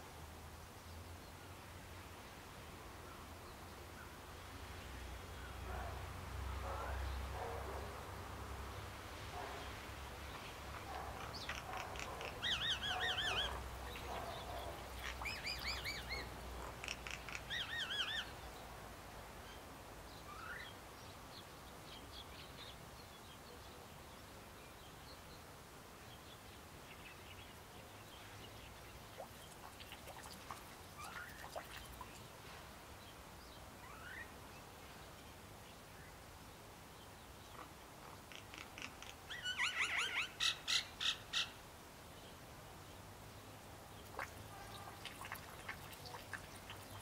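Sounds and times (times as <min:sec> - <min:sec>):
songbirds chattering calls: 0:09.4 - 0:18.7, 0:37.0 - 0:43.1.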